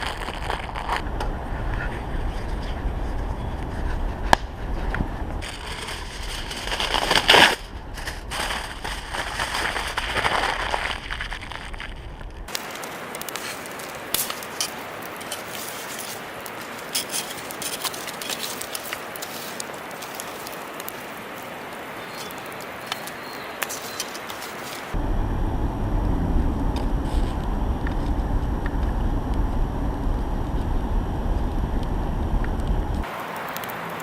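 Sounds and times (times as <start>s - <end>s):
low rumble: 0.0s - 12.5s, 25.0s - 33.1s
wood fire crackling: 0.0s - 34.0s.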